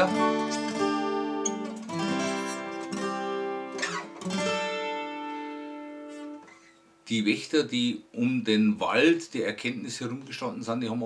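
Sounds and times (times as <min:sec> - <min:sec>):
acoustic guitar chords strummed: 0:00.0 - 0:06.8.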